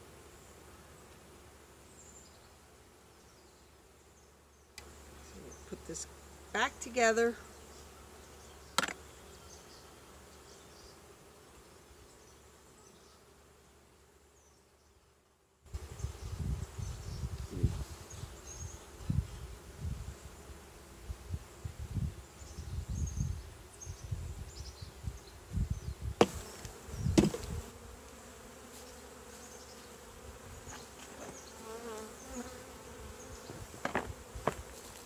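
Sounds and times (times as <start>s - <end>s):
honey bees buzzing: 4.8s - 14.0s, 15.7s - 35.0s
hive parts knocking: 8.8s - 9.0s, 26.2s - 27.5s, 33.6s - 34.7s.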